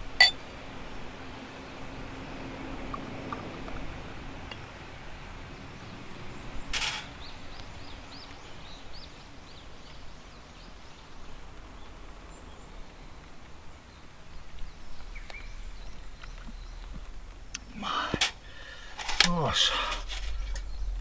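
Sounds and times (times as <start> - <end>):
low outdoor background noise: 0.0 - 21.0
bird chirping: 5.6 - 21.0.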